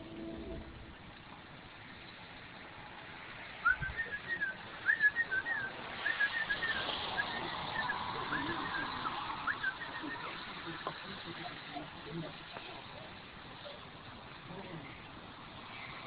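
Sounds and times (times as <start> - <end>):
songbird whistling phrases: 3.6 - 10.4.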